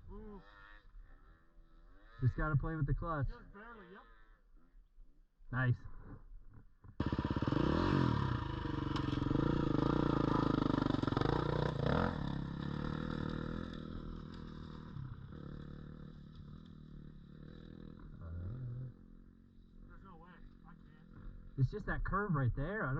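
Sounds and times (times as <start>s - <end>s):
dirt bike engine revving: 7.0s - 21.6s.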